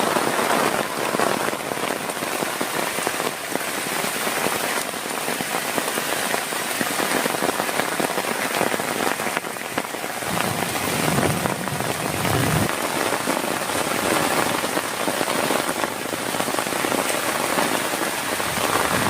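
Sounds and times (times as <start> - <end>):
heavy rain on a surface: 0.0 - 19.0
low rumble: 10.2 - 12.8.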